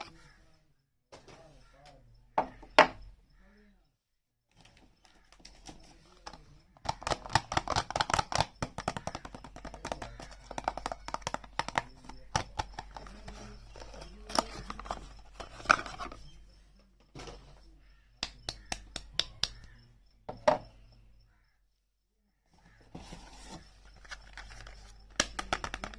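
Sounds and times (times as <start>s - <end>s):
sharp clicks and taps: 6.2s - 16.2s, 18.2s - 19.8s, 24.0s - 25.9s
packaging rustling and crinkling: 9.6s - 16.2s, 23.0s - 25.9s.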